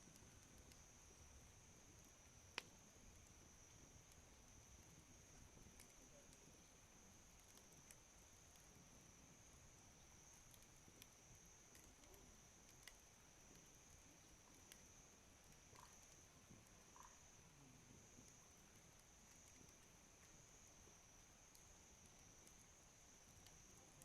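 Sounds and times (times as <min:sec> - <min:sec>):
campfire crackling: 0:00.0 - 0:24.0
small sharp pops: 0:02.0 - 0:06.5, 0:10.0 - 0:17.2.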